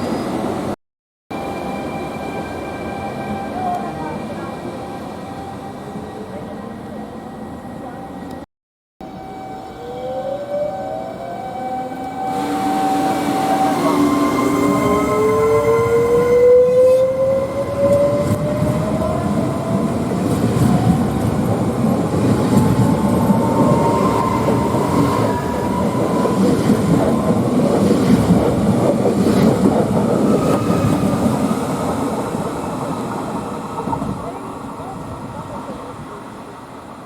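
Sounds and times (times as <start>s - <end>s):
rising whine: 9.0s - 20.0s
train wheels rumbling on rails: 12.3s - 36.6s.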